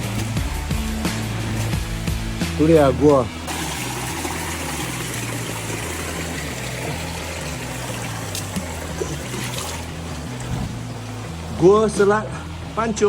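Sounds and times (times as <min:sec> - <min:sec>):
stream trickling over rocks: 0:03.4 - 0:11.7.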